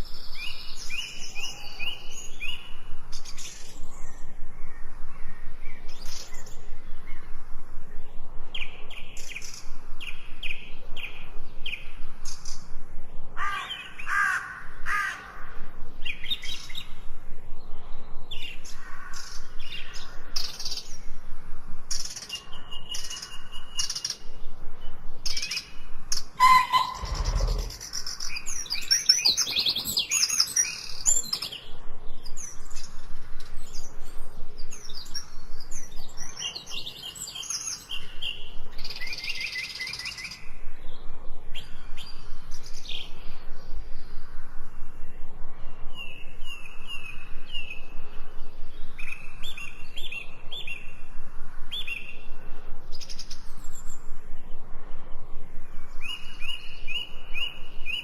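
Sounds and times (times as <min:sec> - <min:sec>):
birds chirping and singing: 0:00.0 - 0:12.8, 0:13.4 - 0:21.3, 0:21.9 - 0:44.2.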